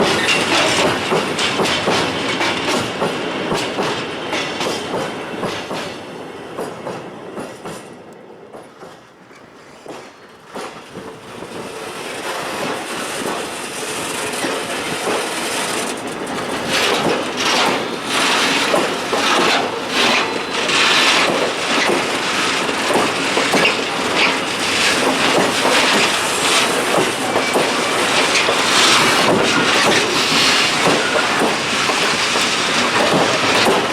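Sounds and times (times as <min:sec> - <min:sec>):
wheels clacking over rail joints: 0:00.0 - 0:06.0, 0:06.6 - 0:33.9
wheel squeal: 0:27.2 - 0:33.9.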